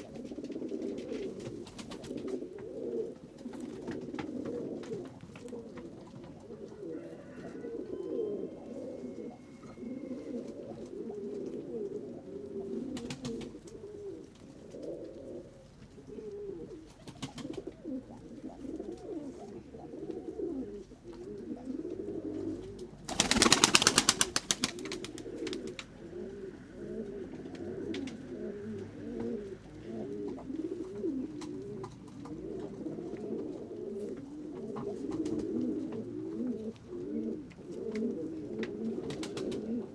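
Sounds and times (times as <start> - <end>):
pigeons cooing: 0.0 - 39.9
pigeon wing claps: 13.0 - 13.6, 17.0 - 17.7, 23.1 - 25.9, 38.6 - 39.6.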